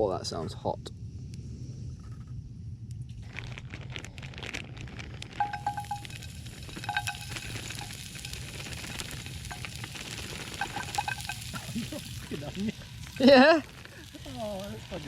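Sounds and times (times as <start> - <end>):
onions sizzling in a frying pan: 5.0 - 15.0
utensil scraping in pan: 5.4 - 15.0.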